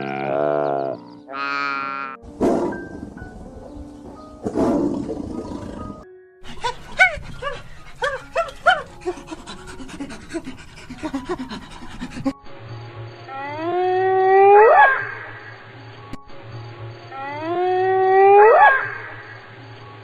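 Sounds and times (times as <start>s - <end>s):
dog howling: 5.8s - 12.4s
dog yelping: 6.4s - 12.4s, 14.6s - 15.1s.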